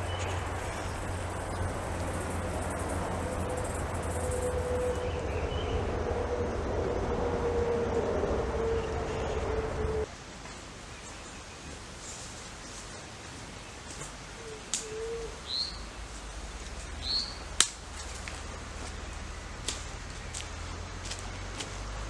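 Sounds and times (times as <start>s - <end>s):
bird chirps: 0.0s - 6.6s, 8.6s - 10.1s, 14.4s - 20.5s
low steady rumble: 0.0s - 10.1s, 15.2s - 22.0s.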